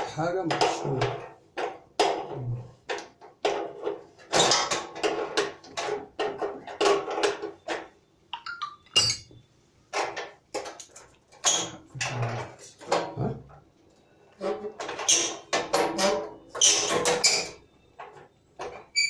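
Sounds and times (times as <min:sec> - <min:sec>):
metal tools clinking: 0:08.4 - 0:09.4.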